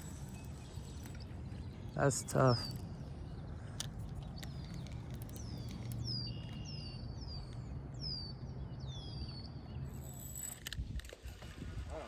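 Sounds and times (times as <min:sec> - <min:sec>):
songbirds chirping: 0:00.0 - 0:10.6.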